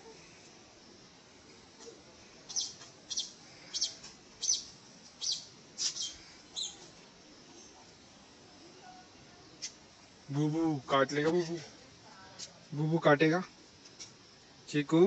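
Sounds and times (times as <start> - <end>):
bird chirping: 2.5 - 6.9.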